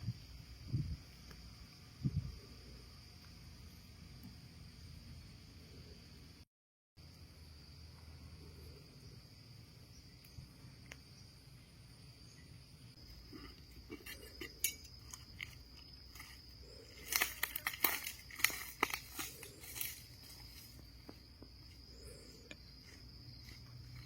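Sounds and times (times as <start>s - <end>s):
high insect drone: 0.0s - 6.4s, 7.0s - 24.0s
crunching handling noises: 13.0s - 21.8s.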